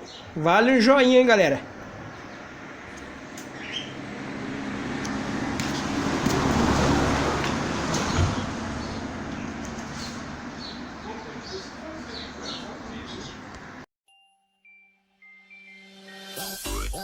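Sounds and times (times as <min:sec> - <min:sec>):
vehicle passing by: 0:01.6 - 0:13.8.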